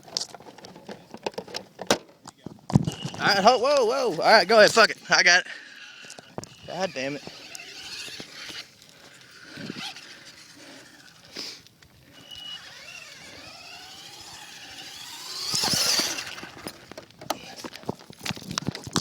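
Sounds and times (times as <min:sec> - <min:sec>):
rc car motor whining: 0:02.8 - 0:18.0
loud scraping rush: 0:02.9 - 0:17.7.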